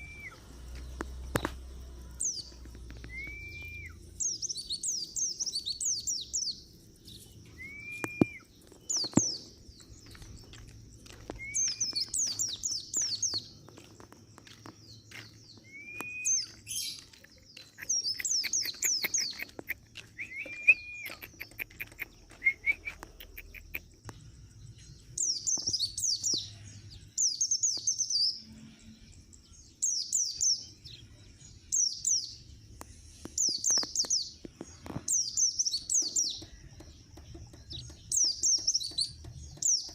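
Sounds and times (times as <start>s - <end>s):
slurred bird whistles: 0.0s - 0.5s, 3.0s - 6.1s, 7.5s - 9.1s, 11.3s - 12.5s, 15.6s - 17.0s, 17.8s - 23.9s
high bird twittering: 0.0s - 1.5s, 2.2s - 13.8s, 14.4s - 24.2s, 31.7s - 39.9s.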